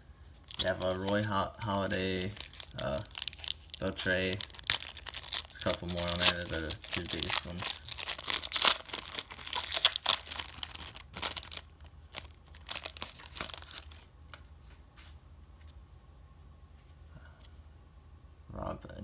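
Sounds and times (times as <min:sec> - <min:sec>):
wrapper tearing and crinkling: 0:00.4 - 0:14.1.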